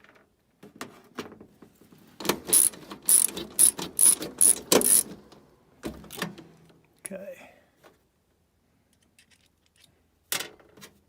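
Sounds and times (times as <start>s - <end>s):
ratcheting screwdriver clicking: 2.5s - 5.1s.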